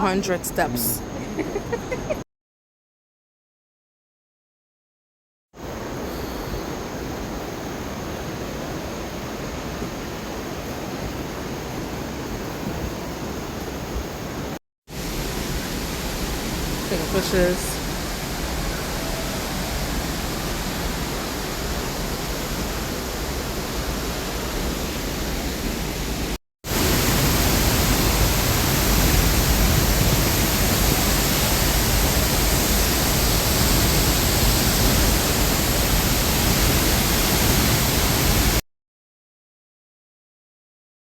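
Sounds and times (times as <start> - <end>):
waterfall rushing: 6.7 - 38.6.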